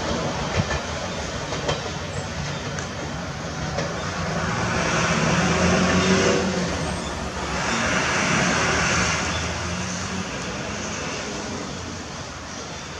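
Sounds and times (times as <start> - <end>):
tyres hissing on wet road: 3.1 - 12.9.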